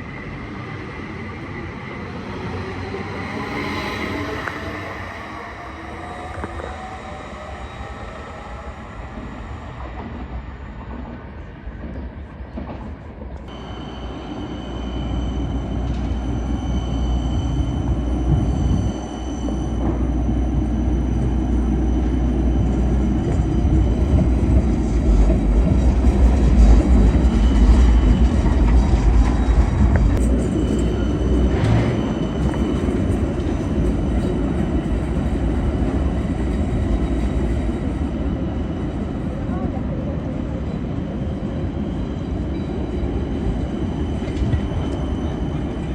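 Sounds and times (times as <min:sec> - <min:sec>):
train rumbling on rails: 0:00.0 - 0:45.9
thin high whine: 0:13.5 - 0:23.4.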